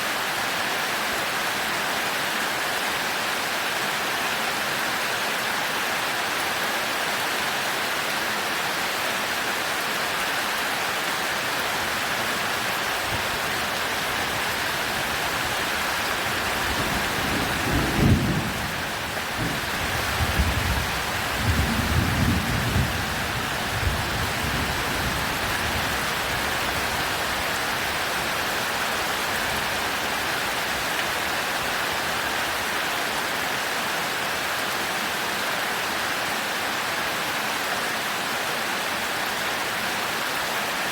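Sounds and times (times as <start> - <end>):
heavy rain hissing: 10.4 - 35.3.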